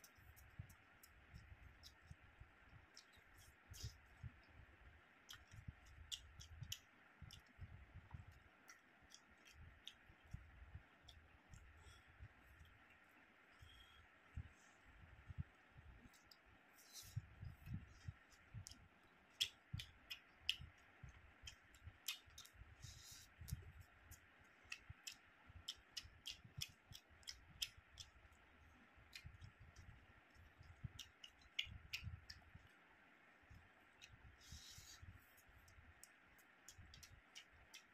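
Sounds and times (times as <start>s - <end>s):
man chewing food: 0.0s - 14.4s, 16.0s - 32.8s, 33.4s - 37.9s
faint steady hum: 0.0s - 37.9s
wet mouth clicks and lip smacks: 5.2s - 11.7s, 19.4s - 28.3s, 29.1s - 32.7s, 33.5s - 37.9s.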